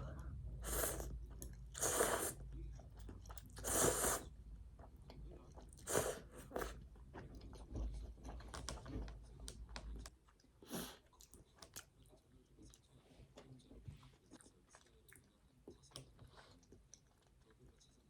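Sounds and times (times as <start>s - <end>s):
person chewing: 0.0s - 11.9s.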